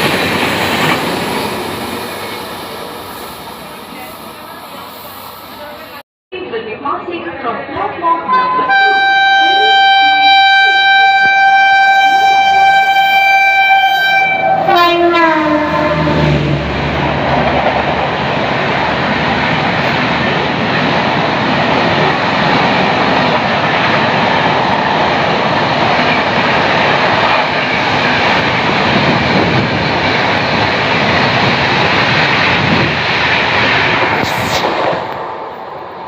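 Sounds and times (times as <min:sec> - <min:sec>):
express train passing: 0:00.0 - 0:06.0, 0:08.2 - 0:36.0.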